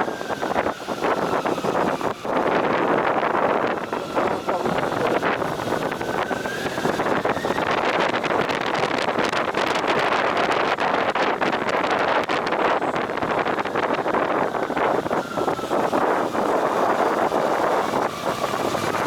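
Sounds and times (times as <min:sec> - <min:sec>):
road noise: 0:00.0 - 0:19.0
wind buffeting microphone: 0:00.0 - 0:19.0
motorcycle engine: 0:13.2 - 0:19.0.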